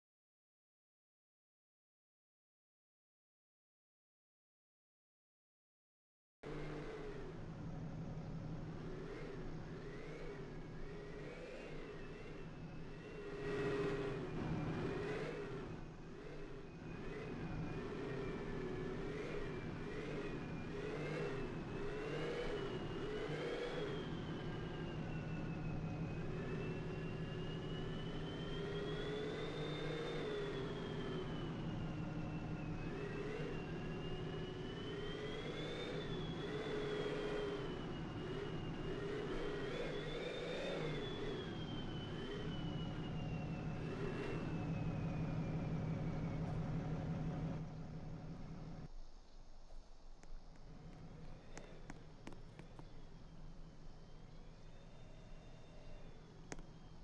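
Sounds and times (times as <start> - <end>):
atv engine revving: 10.1 - 25.3, 25.9 - 48.8.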